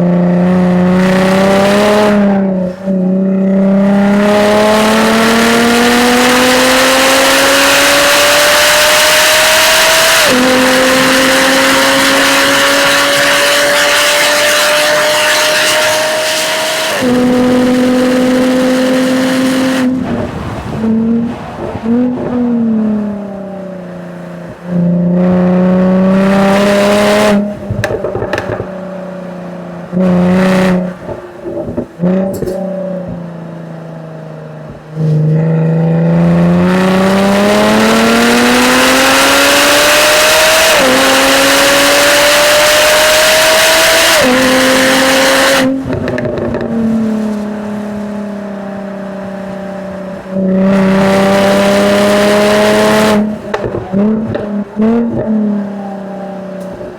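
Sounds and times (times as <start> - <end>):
car engine exhaust at full throttle: 0.0 - 56.9
exhaust pops and crackles: 27.6 - 28.8, 30.3 - 33.2, 45.6 - 48.2, 53.2 - 55.6.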